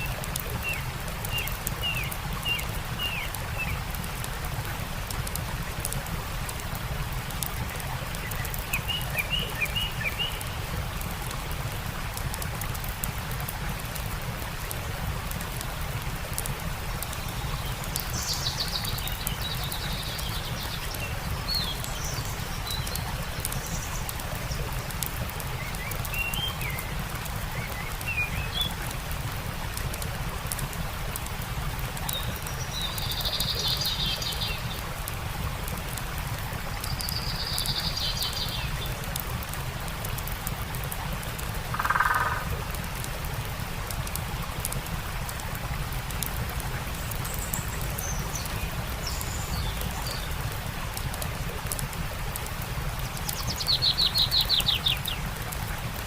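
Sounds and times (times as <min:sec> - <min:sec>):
small birds chirping: 0:00.0 - 0:04.2, 0:07.3 - 0:11.5, 0:16.4 - 0:29.1, 0:31.9 - 0:40.2, 0:46.8 - 0:51.8, 0:52.8 - 0:55.7
campfire crackling: 0:00.0 - 0:56.0
stream water running: 0:00.0 - 0:56.0.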